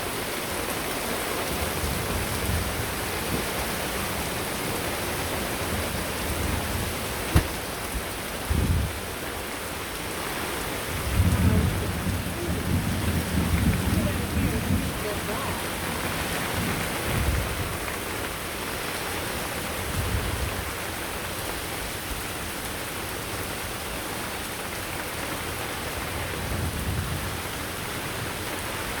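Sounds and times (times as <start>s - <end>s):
heavy rain: 0.0s - 29.0s
thunder rumbling: 10.9s - 17.8s.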